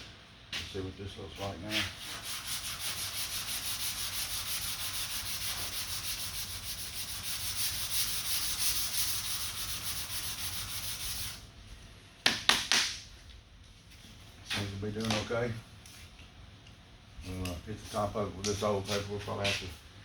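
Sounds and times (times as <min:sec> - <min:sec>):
sandpaper rubbing back and forth: 0:01.4 - 0:11.4.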